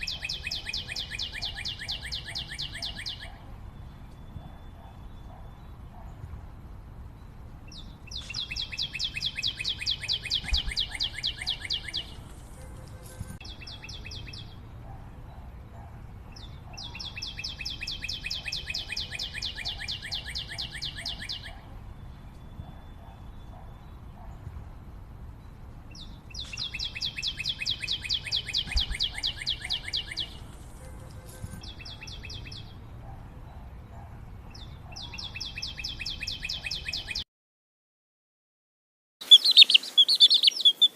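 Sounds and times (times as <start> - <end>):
bird trilling: 39.2 - 40.9.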